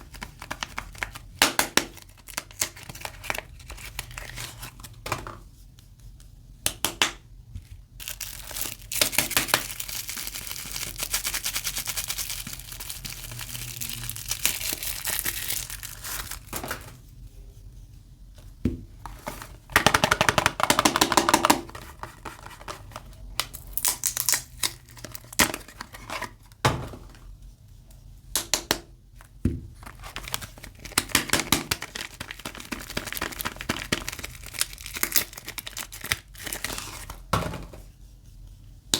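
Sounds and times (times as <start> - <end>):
wrapper crinkling and tearing: 0.0 - 4.8, 8.0 - 17.0, 23.4 - 26.3, 29.8 - 37.3.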